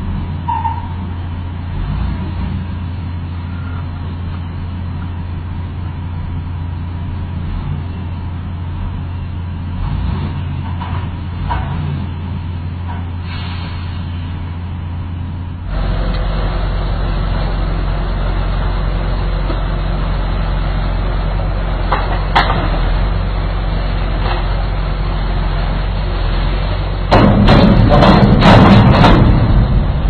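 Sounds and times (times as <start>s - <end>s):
heavy vehicle engine humming: 0.0s - 30.0s
rough clatter: 21.8s - 23.0s, 27.1s - 30.0s.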